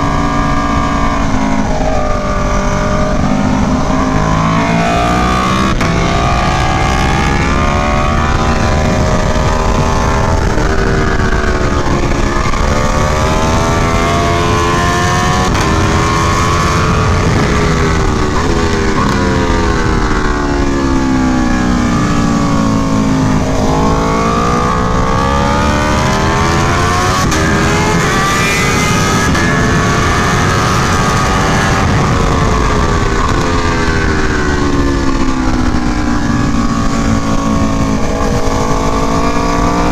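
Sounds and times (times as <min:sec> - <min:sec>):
motorcycle engine revving with upshifts: 0:00.0 - 0:39.9.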